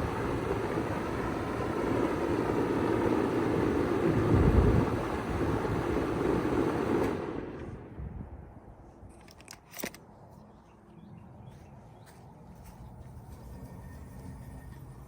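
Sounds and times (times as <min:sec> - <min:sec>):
heat pump running: 0:00.0 - 0:07.5.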